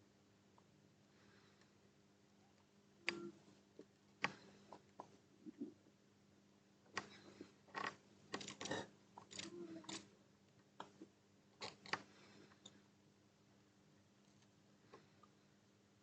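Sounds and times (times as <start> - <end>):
small tools scraping: 7.0 - 10.0
small hand tools clicking: 7.8 - 10.0.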